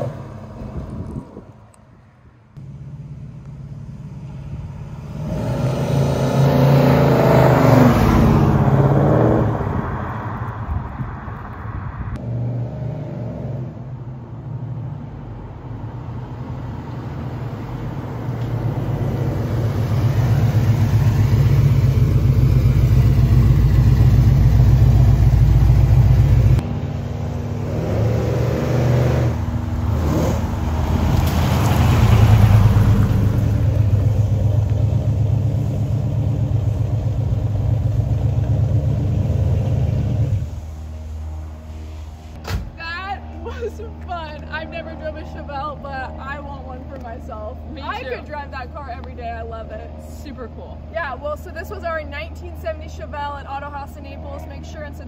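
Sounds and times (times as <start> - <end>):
car engine revving and accelerating: 4.8 - 10.6, 16.8 - 40.8.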